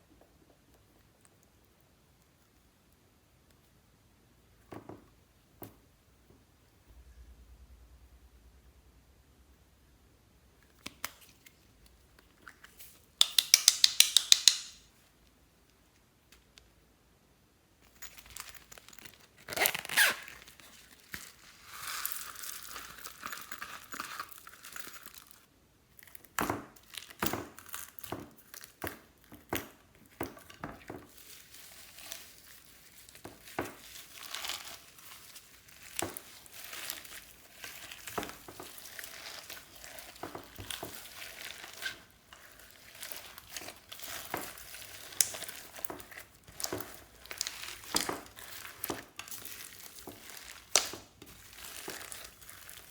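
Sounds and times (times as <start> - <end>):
sticky slime clicks and pops: 13.2 - 14.8.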